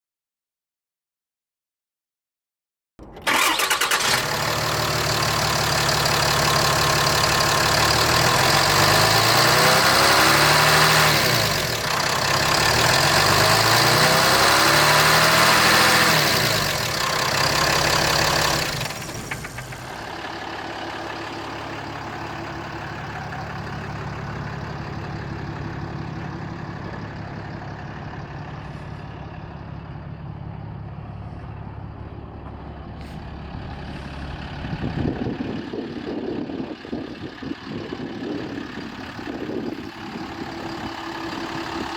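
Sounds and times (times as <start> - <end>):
truck engine starting and revving: 3.0 - 41.9.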